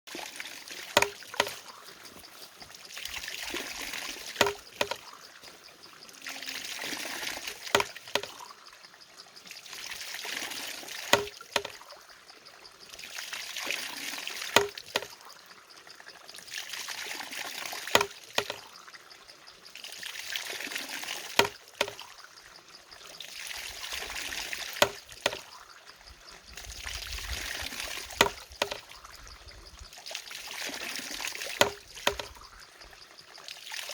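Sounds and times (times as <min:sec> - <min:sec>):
water pouring and trickling: 0:00.1 - 0:33.9
sharp wooden knock: 0:01.0 - 0:01.6, 0:04.4 - 0:05.0, 0:07.7 - 0:08.4, 0:11.1 - 0:11.7, 0:14.6 - 0:15.1, 0:18.0 - 0:18.6, 0:21.4 - 0:22.0, 0:24.8 - 0:25.4, 0:28.2 - 0:28.8, 0:31.6 - 0:32.3.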